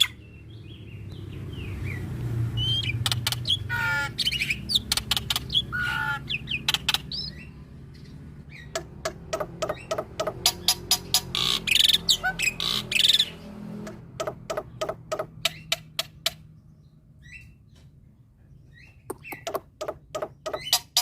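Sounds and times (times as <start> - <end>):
bird harsh calls: 0.0 - 17.9, 18.6 - 21.0
bird clicking notes: 8.7 - 11.1, 19.1 - 21.0.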